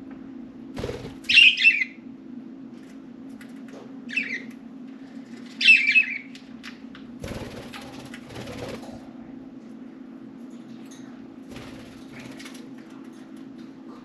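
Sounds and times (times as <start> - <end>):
steady low hum: 0.0 - 14.0
budgerigars chirping: 1.3 - 1.9.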